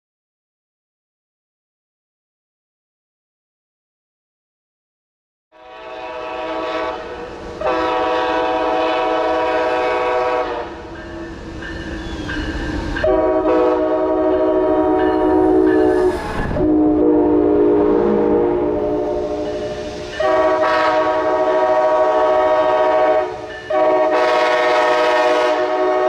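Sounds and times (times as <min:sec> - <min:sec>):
locomotive air horn blasts: 0:05.6 - 0:10.9, 0:13.0 - 0:26.0
train rumbling: 0:05.6 - 0:26.0.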